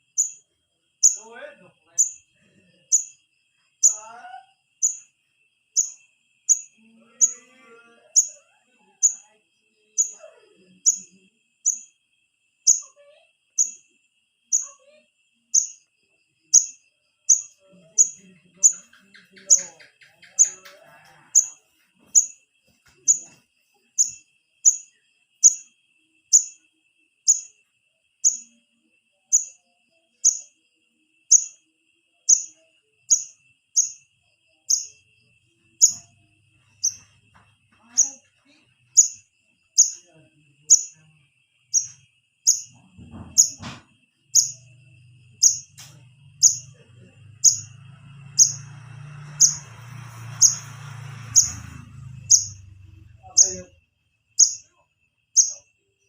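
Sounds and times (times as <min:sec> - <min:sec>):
young bird begging chirps: 0:41.8 - 0:42.7, 0:44.4 - 0:44.6, 0:52.3 - 0:52.6, 0:53.3 - 0:53.7, 0:54.4 - 0:54.6.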